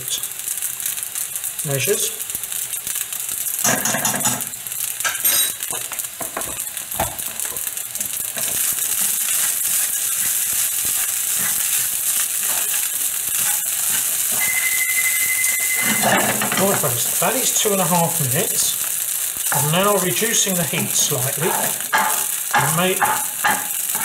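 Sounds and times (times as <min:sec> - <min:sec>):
food sizzling in a wok: 0:00.0 - 0:24.0
metal utensil scraping pan: 0:08.4 - 0:17.5, 0:20.8 - 0:24.0.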